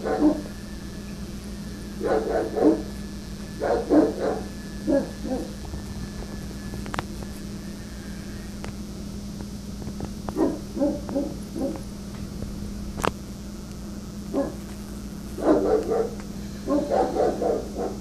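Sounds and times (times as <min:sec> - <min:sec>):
dog barking deeply: 0:00.0 - 0:00.5, 0:02.0 - 0:03.0, 0:03.6 - 0:05.6, 0:10.4 - 0:11.9, 0:14.3 - 0:14.6, 0:15.4 - 0:18.0
steady low hum: 0:00.0 - 0:18.0.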